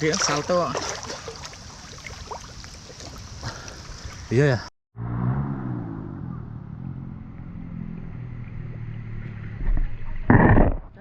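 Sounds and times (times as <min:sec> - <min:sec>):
low rumble: 0:05.0 - 0:11.0.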